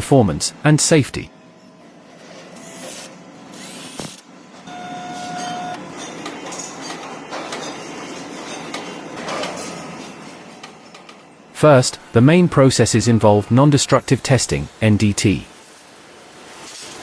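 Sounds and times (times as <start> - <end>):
factory machinery running: 1.6 - 16.8
short steady tone: 4.7 - 5.8.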